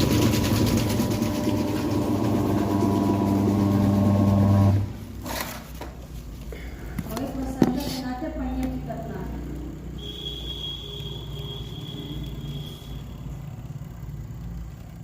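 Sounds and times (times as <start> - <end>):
washing machine motor humming: 0.0 - 5.6.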